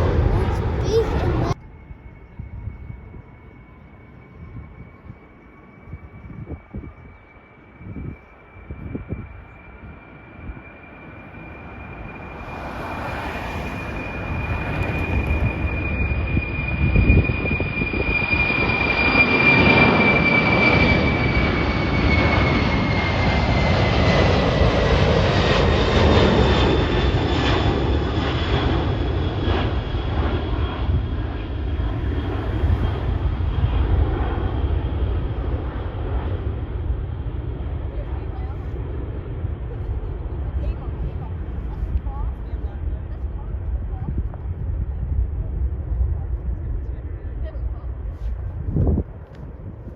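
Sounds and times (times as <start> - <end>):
high engine whine: 0.0 - 7.2, 7.9 - 37.4
airliner engine noise: 0.0 - 49.9.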